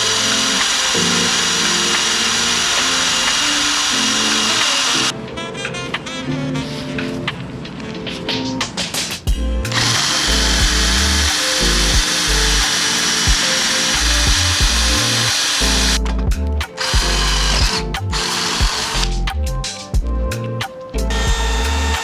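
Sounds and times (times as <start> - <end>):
power tool running: 0.0 - 5.1, 9.7 - 16.0, 16.8 - 19.2, 21.1 - 22.0
background music with bass: 9.3 - 22.0.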